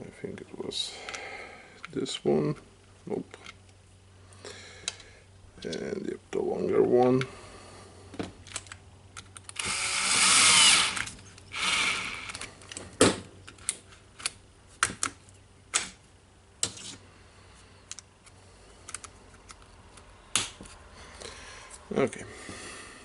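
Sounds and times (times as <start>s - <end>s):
parts clicking and knocking: 8.1s - 16.0s, 17.8s - 20.8s
power screwdriver driving screws: 9.6s - 12.5s.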